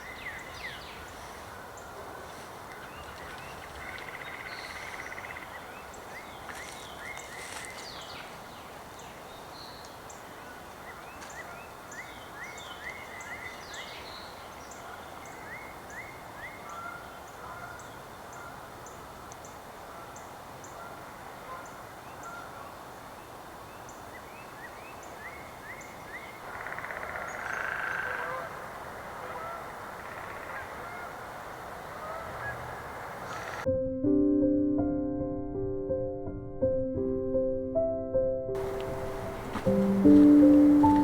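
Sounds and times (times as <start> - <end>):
steady background hiss: 38.6 - 41.0.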